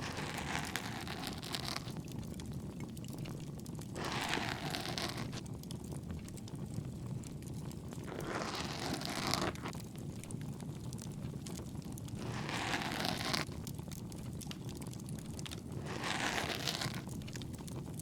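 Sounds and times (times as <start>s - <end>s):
crackling campfire: 0.0s - 18.0s
ear pick scraping in ear: 0.2s - 1.9s, 4.0s - 5.4s, 8.1s - 9.7s, 12.2s - 13.5s, 15.8s - 17.1s.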